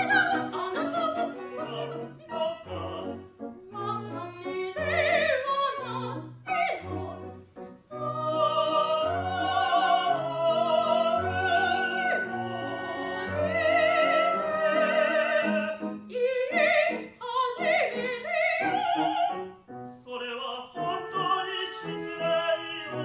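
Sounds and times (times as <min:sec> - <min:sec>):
operatic singing high voice: 0:00.0 - 0:07.3, 0:07.9 - 0:19.2
orchestral accompaniment: 0:06.0 - 0:16.9, 0:20.8 - 0:23.0.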